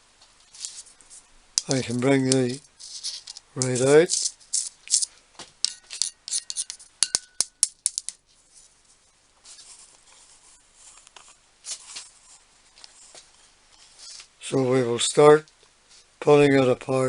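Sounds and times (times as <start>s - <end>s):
rubbing and handling noise: 0.2s - 14.6s
metallic ring: 5.6s - 7.8s.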